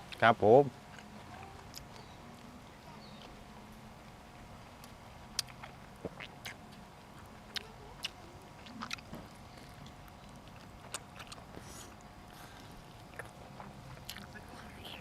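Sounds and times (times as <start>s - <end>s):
chewing: 0.9s - 2.2s, 4.8s - 15.0s
mouth clicks and smacks: 7.5s - 9.2s.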